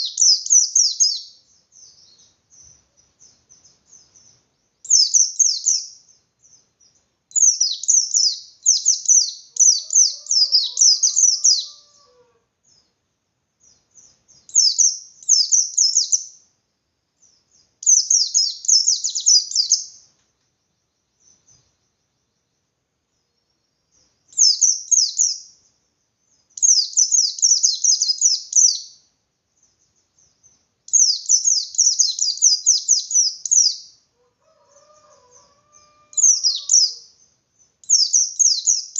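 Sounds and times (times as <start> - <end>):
bird singing stuttering chirps: 0.0 - 11.8, 23.2 - 25.4, 29.6 - 33.9, 36.1 - 38.9.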